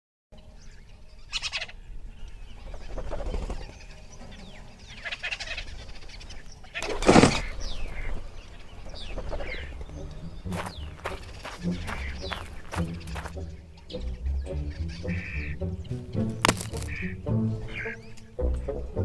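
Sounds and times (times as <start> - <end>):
birds calling and chirping: 0.4 - 18.9.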